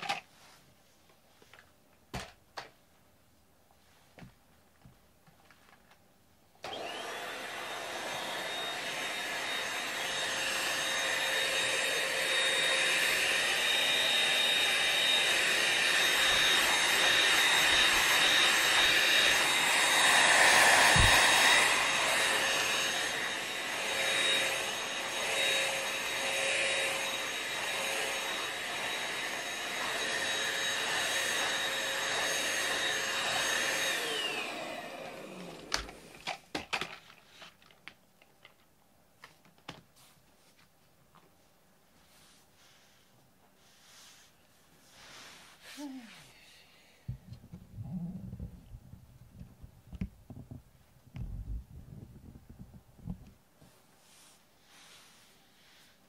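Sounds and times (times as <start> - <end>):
vacuum cleaner running: 6.6 - 36.4.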